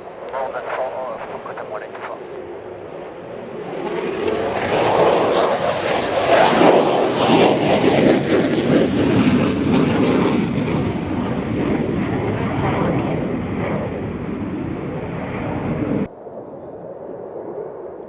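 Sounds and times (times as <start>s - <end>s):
propeller aircraft passing close: 0.0s - 18.0s.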